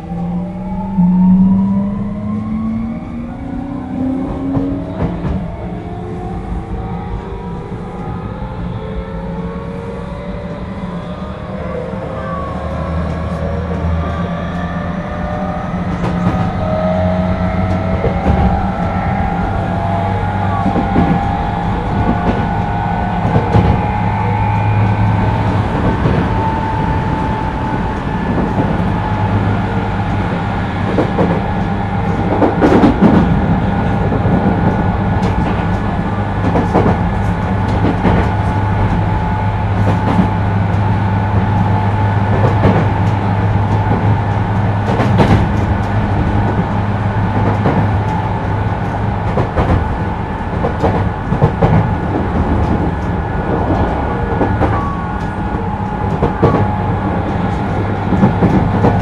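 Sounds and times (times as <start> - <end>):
train motor hum: 0.0 - 59.0
wheels clicking on rails: 12.6 - 59.0.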